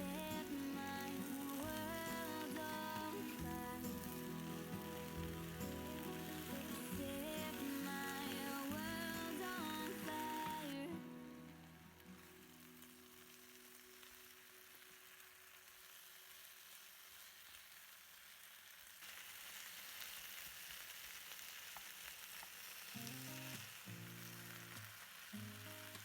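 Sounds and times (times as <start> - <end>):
background music: 0.0 - 12.4
food sizzling in a pan: 0.0 - 26.0.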